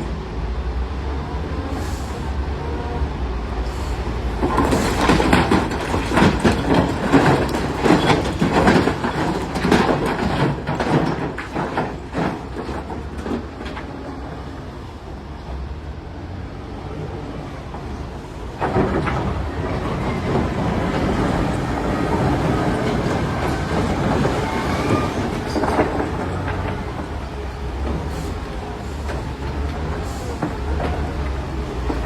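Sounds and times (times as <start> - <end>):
diesel engine hum: 0.0 - 32.0
rocks crashing and clattering: 4.4 - 14.1.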